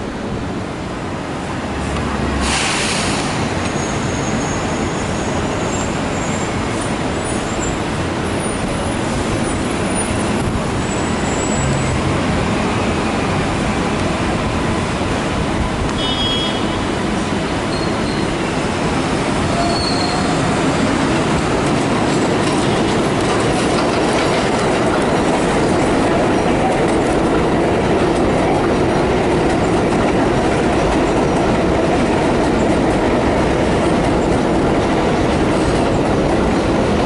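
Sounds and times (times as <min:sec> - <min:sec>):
train rumbling past: 0:00.0 - 0:37.0
hiss of air: 0:02.4 - 0:03.5
high-pitched wheel squeal: 0:17.7 - 0:18.5, 0:19.5 - 0:20.6.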